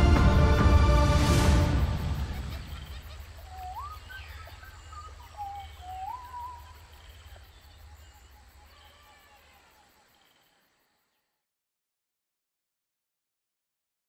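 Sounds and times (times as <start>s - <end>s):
orchestral chord: 0.0s - 2.8s
jungle ambience: 0.0s - 11.5s
rising bird whistles: 2.3s - 6.8s.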